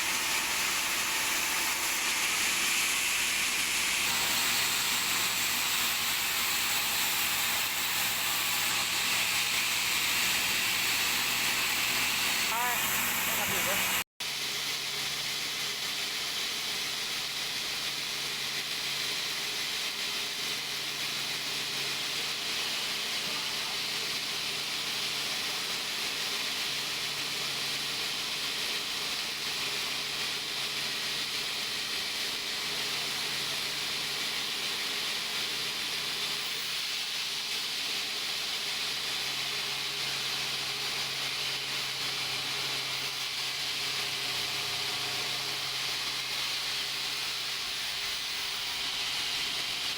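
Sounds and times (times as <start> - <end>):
hissing machine noise: 0.0 - 14.0.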